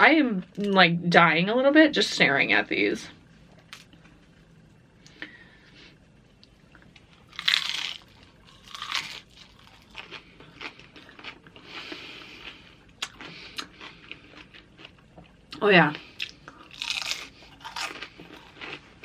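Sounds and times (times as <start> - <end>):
crunchy chewing: 6.7 - 19.0
loud crunches biting chips: 7.2 - 15.0, 16.2 - 19.0.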